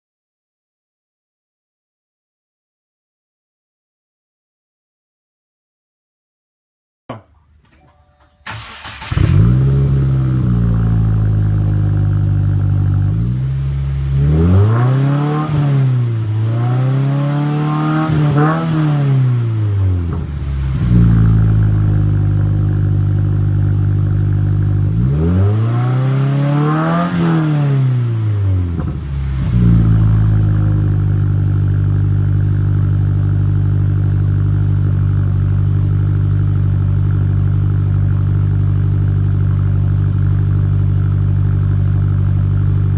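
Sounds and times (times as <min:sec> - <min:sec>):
car engine idling: 0:08.4 - 0:14.4, 0:19.7 - 0:25.1, 0:28.2 - 0:42.9
car engine revving: 0:08.5 - 0:42.9.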